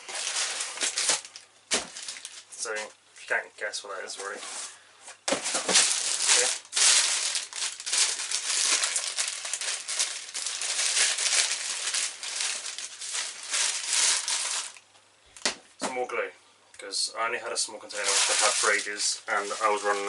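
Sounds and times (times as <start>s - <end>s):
crinkly packaging tearing and rustling: 0.0s - 2.8s, 5.3s - 14.8s, 17.9s - 20.0s.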